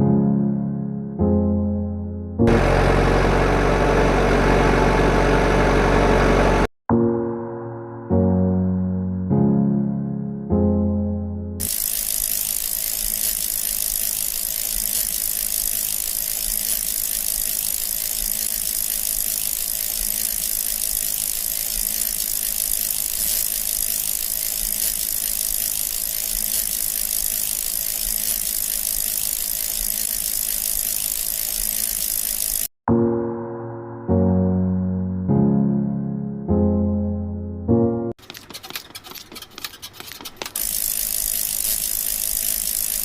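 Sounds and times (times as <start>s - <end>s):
gear mechanism ratcheting and whirring: 11.6s - 32.8s, 38.2s - 43.0s.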